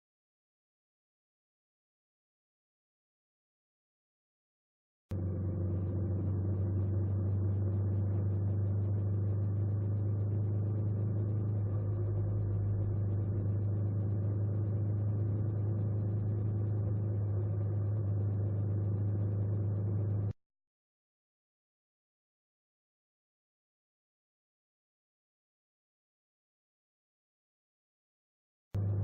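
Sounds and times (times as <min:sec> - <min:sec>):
engine running steadily: 0:05.1 - 0:20.4, 0:28.8 - 0:29.0.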